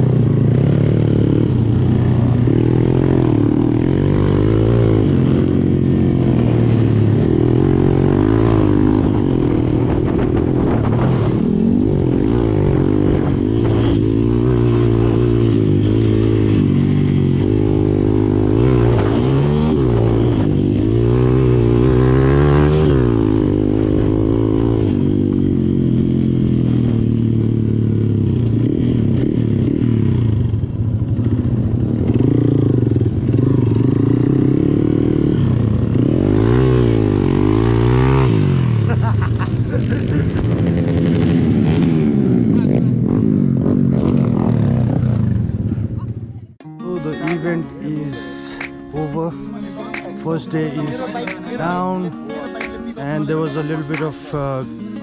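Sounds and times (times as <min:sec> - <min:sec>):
dirt bike engine revving: 0:00.0 - 0:30.2, 0:31.3 - 0:39.0, 0:47.2 - 0:51.9, 0:52.6 - 0:53.2.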